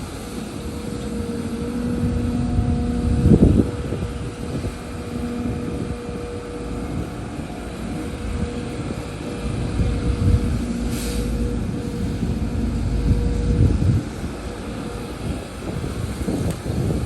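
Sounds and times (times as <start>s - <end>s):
diesel machinery rumbling: 0.0s - 17.0s
short hiss: 10.9s - 11.4s.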